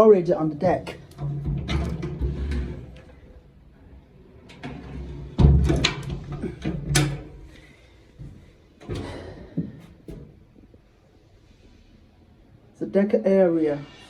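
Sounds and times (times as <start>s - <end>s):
hatch knocking and clattering: 4.5s - 10.9s.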